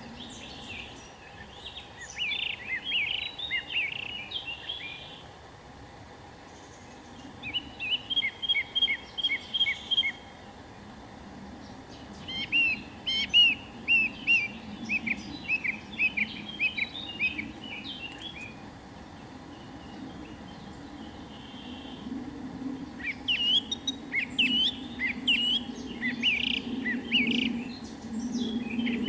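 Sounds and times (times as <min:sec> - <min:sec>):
songbird whistling: 0:07.4 - 0:10.2, 0:12.2 - 0:18.5, 0:23.0 - 0:27.6.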